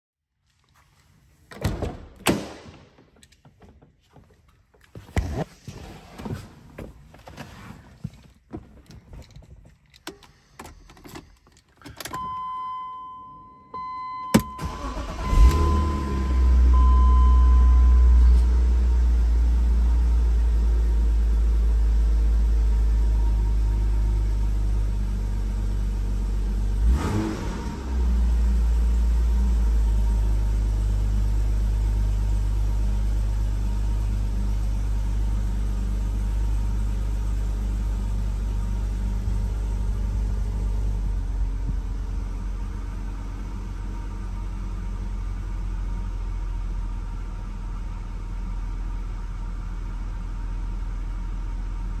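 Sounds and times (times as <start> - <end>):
car engine idling: 14.4 - 51.9.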